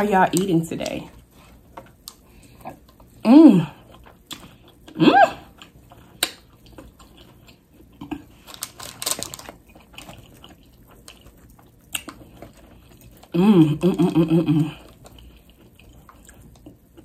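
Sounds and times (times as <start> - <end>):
chewing and wet mouth sounds: 0.0 - 17.0
person humming: 3.3 - 3.8, 5.0 - 5.4, 13.4 - 14.8.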